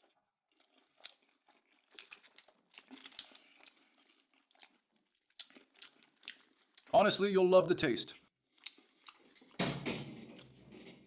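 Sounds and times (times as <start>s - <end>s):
close-up chewing: 0.0s - 7.0s, 8.2s - 9.6s.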